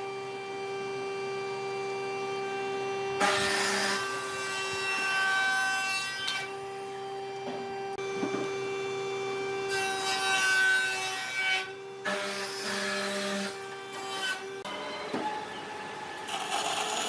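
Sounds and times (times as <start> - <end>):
power tool motor whine: 13.4 - 17.0.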